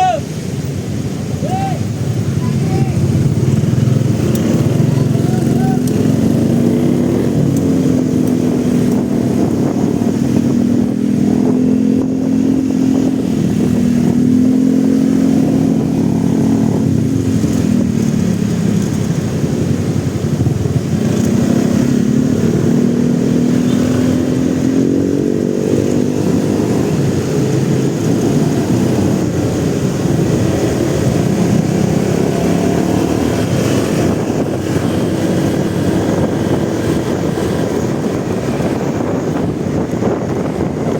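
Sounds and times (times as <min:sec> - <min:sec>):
motorcycle engine accelerating: 0:02.6 - 0:40.9.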